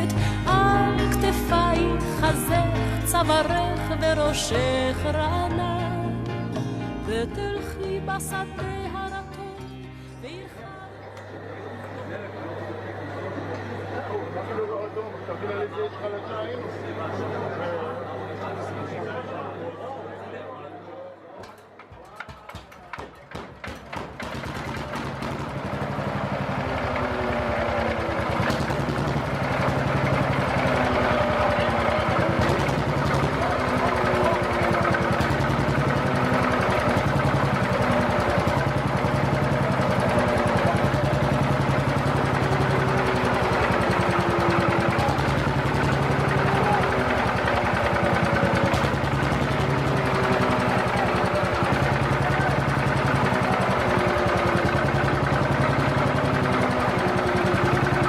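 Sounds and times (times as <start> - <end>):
old tractor engine running: 0.0 - 5.3, 21.5 - 58.0.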